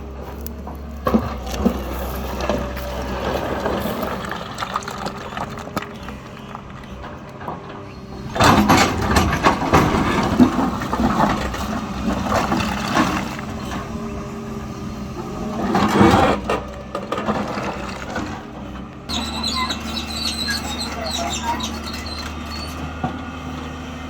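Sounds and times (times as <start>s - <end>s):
diesel engine running under load: 0.0s - 24.0s.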